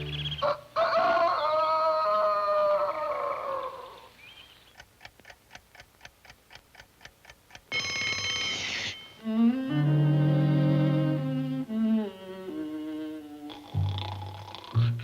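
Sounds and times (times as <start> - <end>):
clock ticking: 4.7 - 9.3
alarm clock bell ringing: 7.7 - 9.3
cartoon music score: 7.8 - 15.0.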